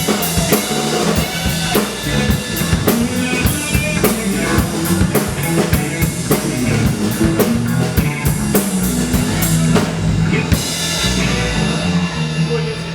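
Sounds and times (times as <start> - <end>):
drum kit beat: 0.0 - 12.9
live rock band: 0.0 - 12.9.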